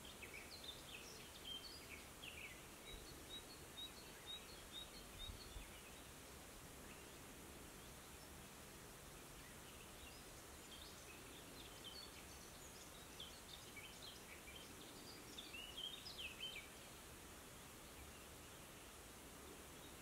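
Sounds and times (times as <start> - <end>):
background hiss: 0.0 - 20.0
faint birdsong: 0.0 - 20.0.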